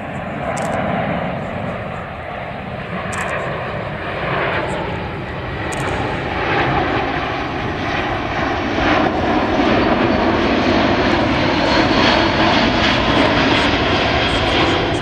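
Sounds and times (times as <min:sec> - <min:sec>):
airplane engines in flight: 0:00.0 - 0:15.0.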